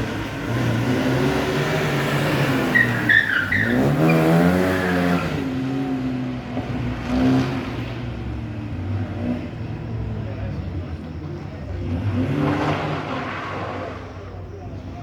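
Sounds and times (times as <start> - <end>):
rally car engine revving: 0.0 - 15.0
tyre squeals: 2.6 - 5.4.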